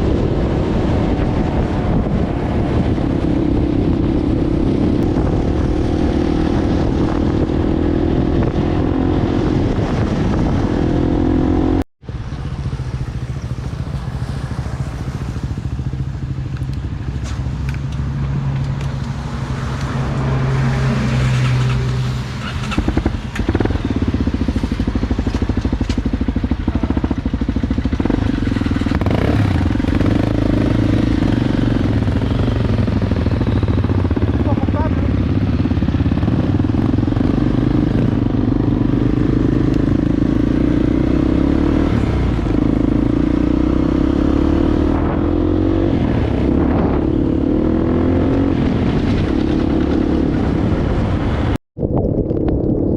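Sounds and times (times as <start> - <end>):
motorcycle engine running: 22.5 - 51.6.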